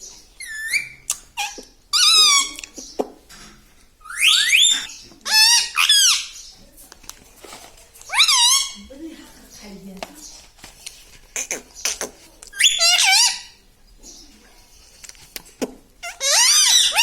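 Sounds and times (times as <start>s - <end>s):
parrot squawking: 0.0s - 3.0s, 4.0s - 6.5s, 8.1s - 8.9s, 11.3s - 13.6s, 16.0s - 17.0s.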